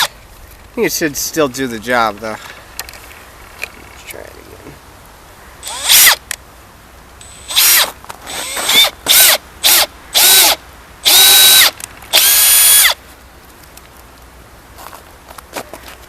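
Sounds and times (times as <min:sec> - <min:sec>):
electric drill boring through mirror: 0:05.6 - 0:06.2, 0:07.2 - 0:13.0.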